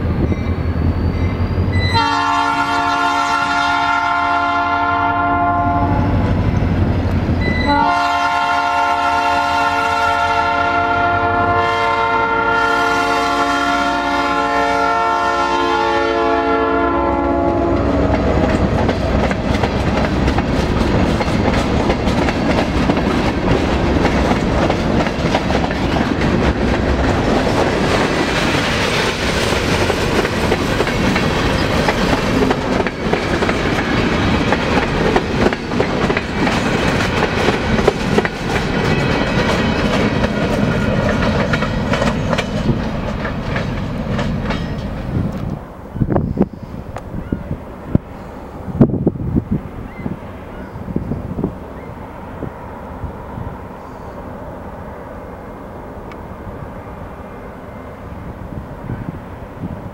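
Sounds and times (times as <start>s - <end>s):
locomotive air horn blast: 1.7s - 6.2s, 7.4s - 18.5s
train wheels clicking over rail joints: 17.7s - 45.6s.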